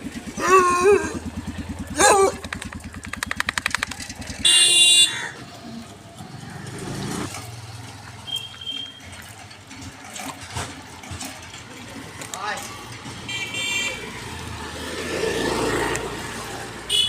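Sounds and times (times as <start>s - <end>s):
motorcycle engine running: 0.0s - 13.3s
passing traffic: 0.0s - 17.0s
vehicle horn: 4.4s - 5.3s, 13.3s - 14.0s.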